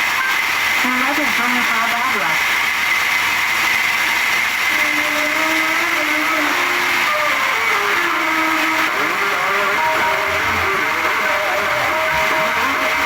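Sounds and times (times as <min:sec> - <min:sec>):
saw whining: 0:00.0 - 0:13.0
guitar-like melody: 0:04.7 - 0:13.0.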